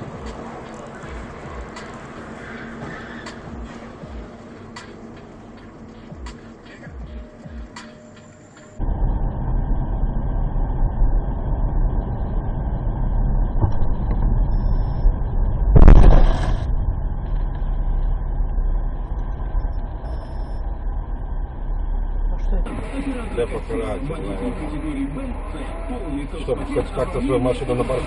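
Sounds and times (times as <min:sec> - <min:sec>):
vehicle engine and road rumble: 0:00.0 - 0:28.0
loud vehicle crash: 0:08.8 - 0:26.3.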